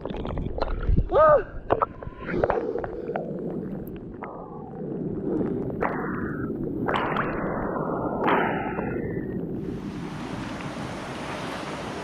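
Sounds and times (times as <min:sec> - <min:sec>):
river rushing: 0:09.6 - 0:12.0.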